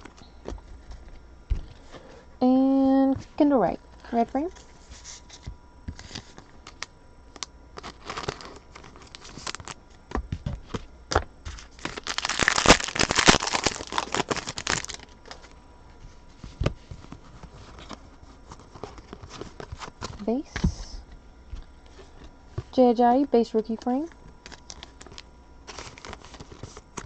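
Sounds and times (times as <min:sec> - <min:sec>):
cards being handled: 0:04.5 - 0:15.6, 0:23.9 - 0:27.0
wrapper crinkling and tearing: 0:06.0 - 0:10.0, 0:11.5 - 0:15.5, 0:24.4 - 0:27.0.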